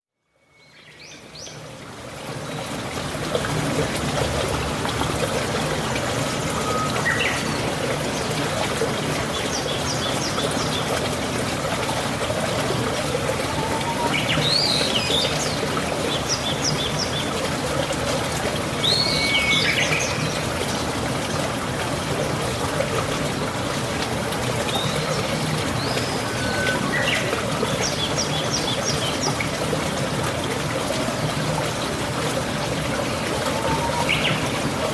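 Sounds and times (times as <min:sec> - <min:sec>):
water trickling: 0:00.6 - 0:34.9
steady rain: 0:00.7 - 0:34.9
birds chirping: 0:24.7 - 0:29.4.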